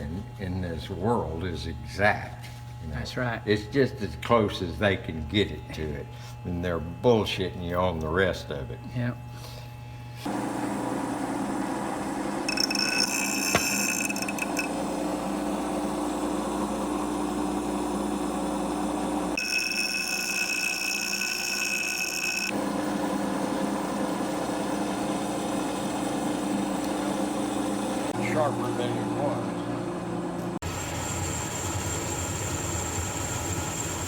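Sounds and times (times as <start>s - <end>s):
machine running: 10.2s - 34.0s
tool squealing on steel: 12.5s - 14.7s.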